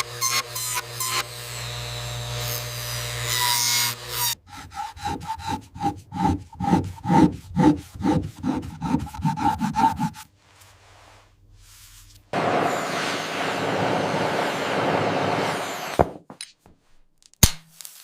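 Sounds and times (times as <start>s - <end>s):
steady hissing noise: 10.9s - 16.1s.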